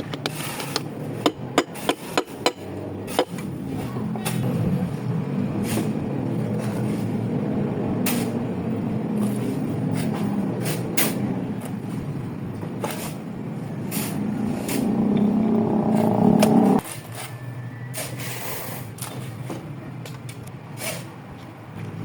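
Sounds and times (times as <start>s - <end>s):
low mechanical rumble: 0.0s - 16.8s.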